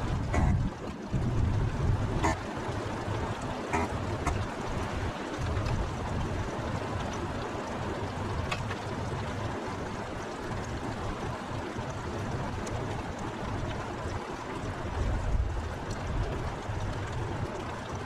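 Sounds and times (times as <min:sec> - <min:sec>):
heavy rain falling: 0:00.0 - 0:12.4.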